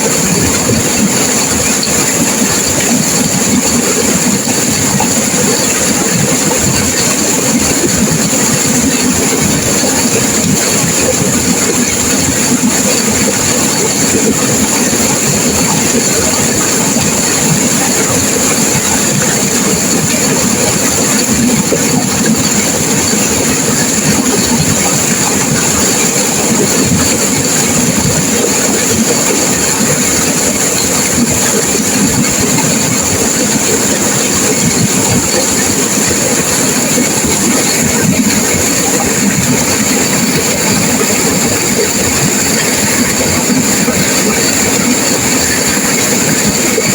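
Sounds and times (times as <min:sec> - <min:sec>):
river water rushing: 0:00.0 - 0:46.9.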